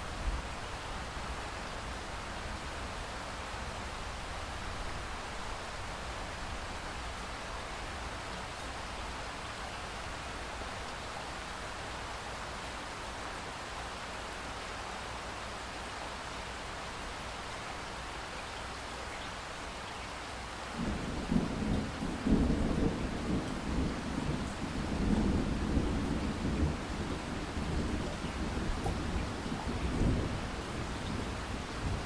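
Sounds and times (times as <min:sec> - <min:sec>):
steady rain hiss: 0:00.0 - 0:32.0
rolling thunder rumble: 0:20.8 - 0:32.0.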